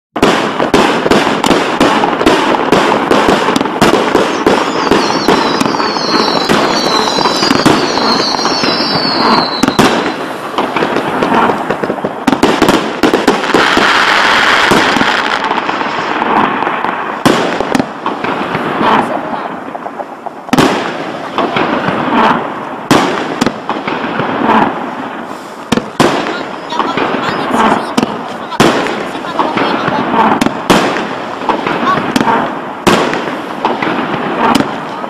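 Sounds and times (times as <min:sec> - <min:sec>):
fireworks launching and bursting: 0:00.2 - 0:35.0
falling high whistling tones: 0:04.6 - 0:10.1.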